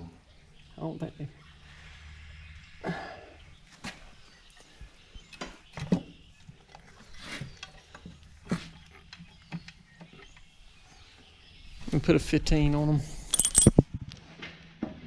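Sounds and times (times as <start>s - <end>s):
hand tools clicking and clanking: 13.3s - 13.8s.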